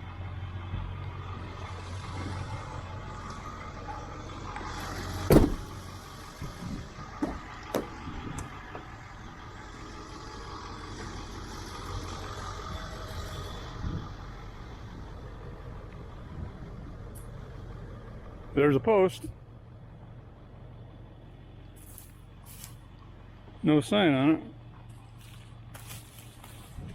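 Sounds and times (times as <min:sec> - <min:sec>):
vehicle engine hum: 0:00.0 - 0:26.9
loud thump: 0:05.2 - 0:05.8, 0:07.2 - 0:08.0.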